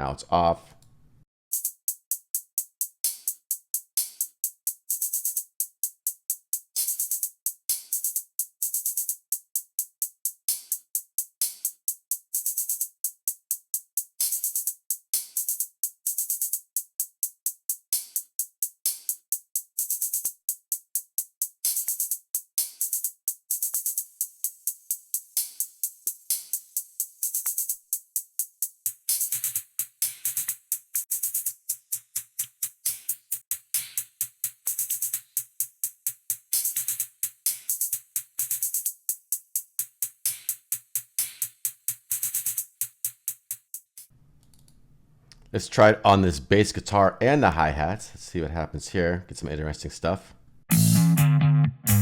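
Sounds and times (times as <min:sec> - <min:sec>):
drum machine hi-hat ticks: 0:01.5 - 0:44.1, 0:50.7 - 0:51.2.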